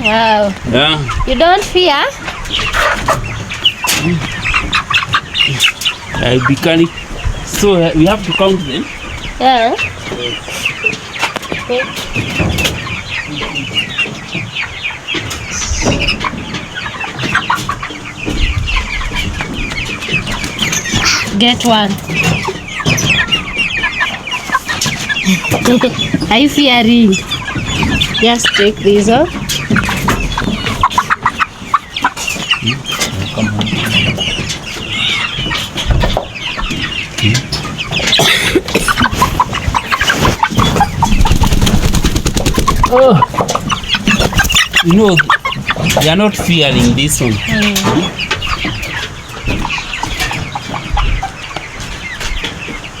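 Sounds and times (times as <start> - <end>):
chicks clucking and cheeping: 0.0 - 53.0
knocks and scuffling: 29.0 - 50.9.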